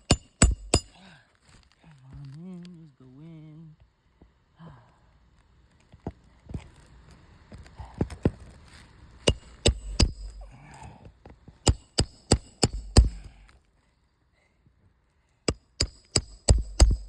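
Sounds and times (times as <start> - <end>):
hammer blows on metal: 0.0 - 1.0, 9.3 - 10.5, 15.5 - 17.0.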